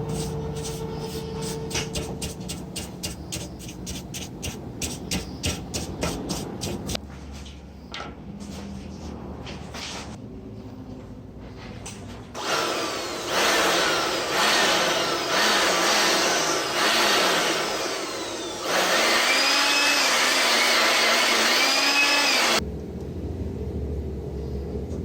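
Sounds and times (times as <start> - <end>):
electric duster blowing air: 0.0 - 7.0, 12.4 - 22.6.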